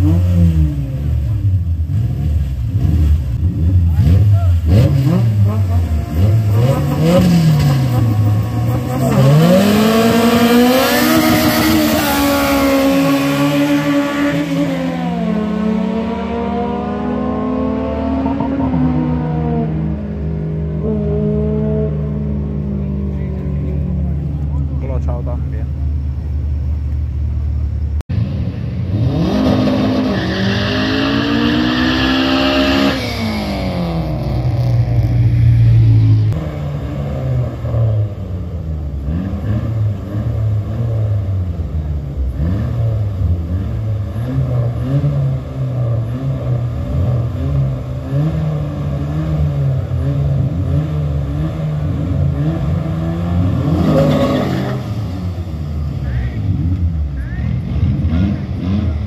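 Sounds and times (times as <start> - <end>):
race car engines idling: 2.5 - 10.4, 22.0 - 28.0, 55.2 - 59.0
engine revving hard: 2.8 - 19.8, 28.8 - 35.2, 42.3 - 59.0.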